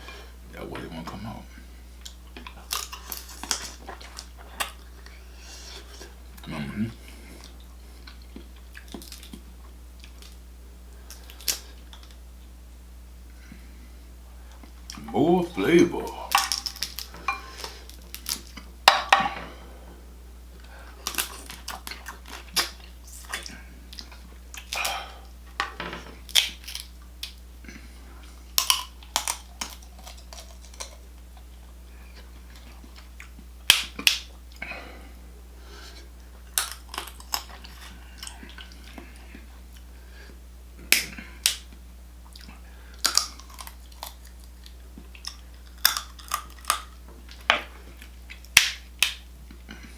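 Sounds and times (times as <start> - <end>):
low electrical hum: 0.0 - 49.9
person chewing with wet mouth smacks: 7.4 - 10.4, 20.6 - 25.4, 40.8 - 49.9.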